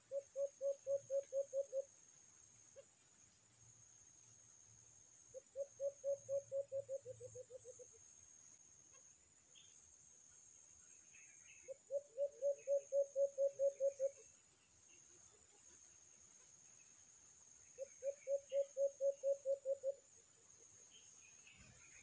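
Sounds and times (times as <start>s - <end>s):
bird hooting rapidly: 0.0s - 1.9s, 5.4s - 7.8s, 11.7s - 14.2s, 17.8s - 20.0s.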